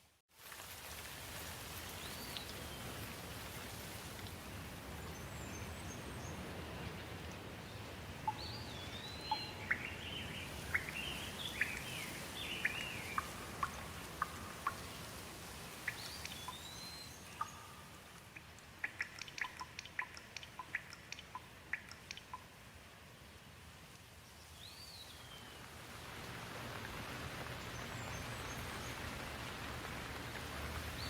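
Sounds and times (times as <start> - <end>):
steady rain: 0.0 - 31.0
songbird chirping and whistling: 8.3 - 14.9, 15.9 - 18.0
water drops falling: 12.5 - 15.2, 15.8 - 22.5.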